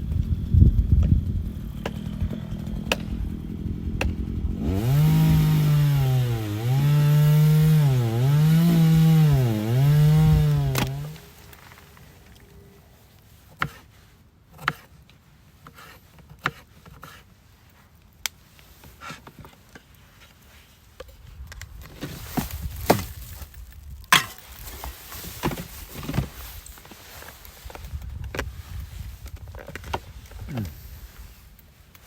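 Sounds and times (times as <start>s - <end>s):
wood chopping knocks and cracks: 8.4s - 11.8s, 21.6s - 26.4s.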